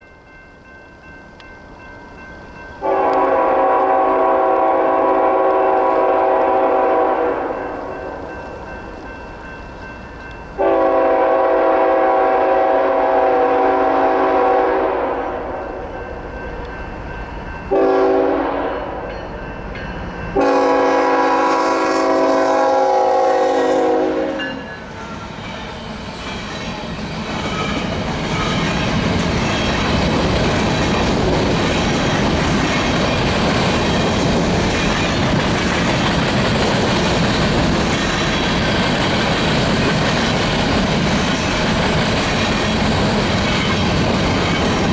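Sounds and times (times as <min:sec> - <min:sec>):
train rumbling past: 0:00.0 - 0:44.9
locomotive air horn blasts: 0:02.8 - 0:07.7, 0:10.6 - 0:15.6, 0:17.7 - 0:19.1, 0:20.4 - 0:24.7
wheels clacking on rail joints: 0:24.8 - 0:44.9.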